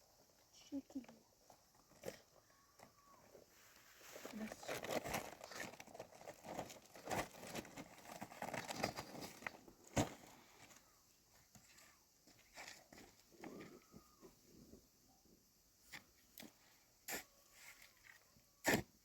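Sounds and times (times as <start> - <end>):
material rustling and crinkling: 3.0 - 10.9.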